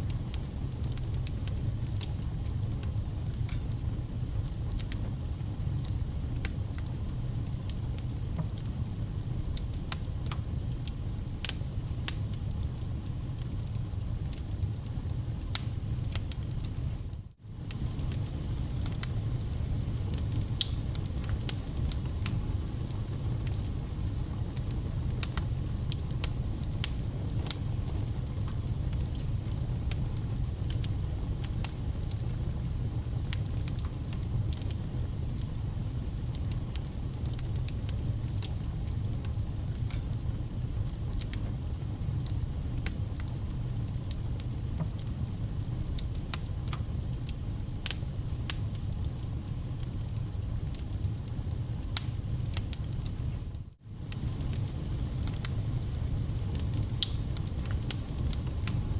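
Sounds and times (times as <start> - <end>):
wood fire crackling: 0.0 - 58.9.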